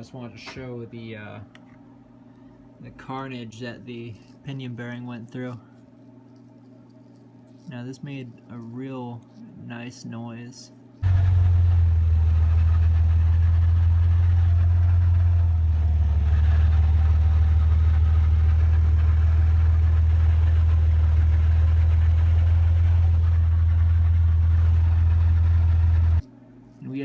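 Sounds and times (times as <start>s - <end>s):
axle whine: 11.0s - 26.2s
rear axle low drone: 11.0s - 26.3s.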